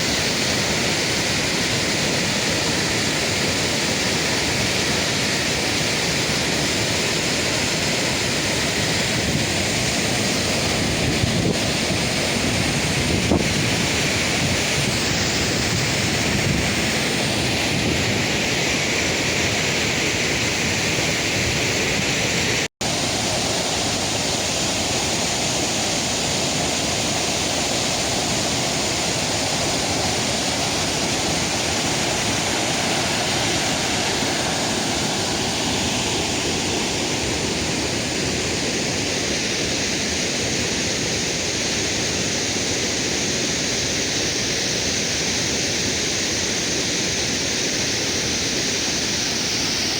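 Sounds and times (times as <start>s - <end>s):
waterfall rushing: 0.0s - 49.9s.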